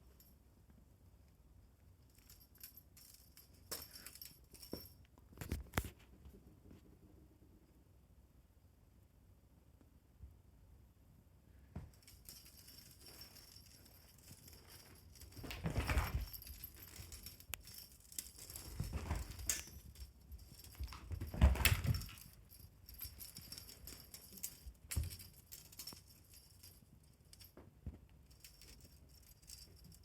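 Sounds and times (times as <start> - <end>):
toy jingling and rattling: 2.0 - 5.0, 12.0 - 27.6, 28.2 - 30.0
rustling and thumps: 11.8 - 26.1.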